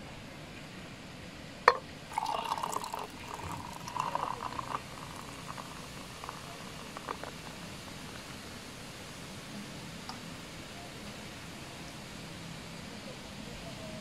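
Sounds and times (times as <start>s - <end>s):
bottle clinking on tumbler: 1.7s - 8.0s
beer gurgling as poured: 1.7s - 8.8s
beer foam fizzing: 1.7s - 9.5s.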